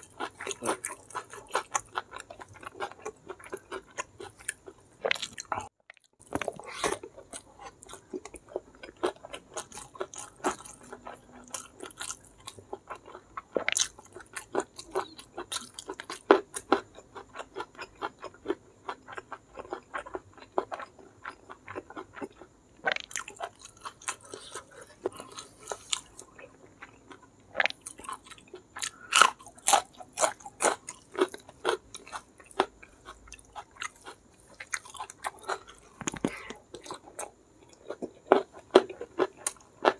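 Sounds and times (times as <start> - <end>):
wet crunchy chewing: 0.0 - 39.9.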